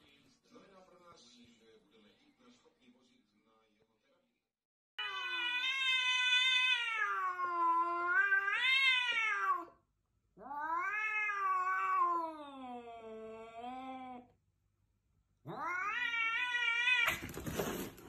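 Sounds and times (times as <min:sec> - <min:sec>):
cat yowling: 0:05.0 - 0:09.8, 0:10.4 - 0:14.2, 0:15.4 - 0:17.4.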